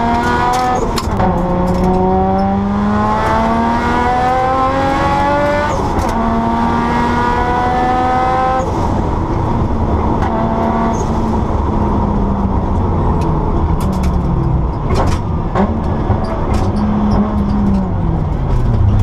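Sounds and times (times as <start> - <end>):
rally car engine revving: 0.0 - 19.0
road rumble: 0.0 - 19.0
sharp clicks and knocks: 0.1 - 2.6, 12.8 - 19.0.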